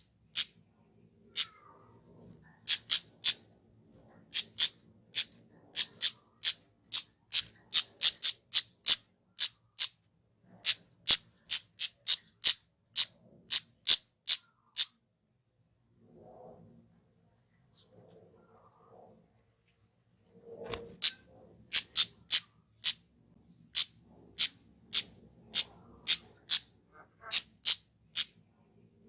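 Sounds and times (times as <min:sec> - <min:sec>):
bird chip calls: 0:00.0 - 0:00.6, 0:01.3 - 0:01.7, 0:02.7 - 0:03.4, 0:04.3 - 0:10.0, 0:10.6 - 0:15.0, 0:20.8 - 0:23.0, 0:23.7 - 0:28.4.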